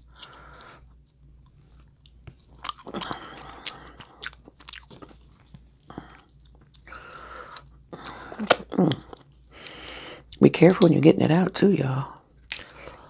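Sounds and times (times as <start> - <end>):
chewing and crunching: 0.0 - 8.2, 12.4 - 13.0.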